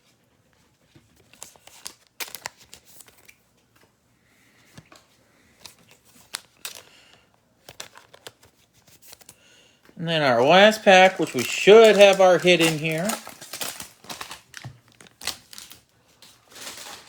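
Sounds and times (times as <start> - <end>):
foil wrapper crinkling: 1.4 - 3.4, 10.0 - 17.0
card clicks: 10.1 - 13.8.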